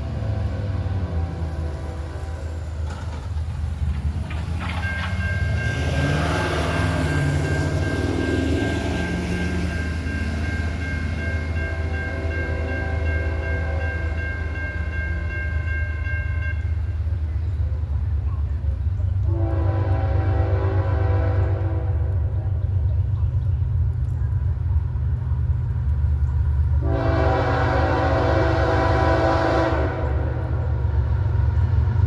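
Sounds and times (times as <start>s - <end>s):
locomotive air horn: 0.0s - 2.8s, 11.4s - 14.9s, 19.2s - 22.4s, 26.8s - 30.8s
diesel locomotive engine rumble: 0.0s - 32.0s.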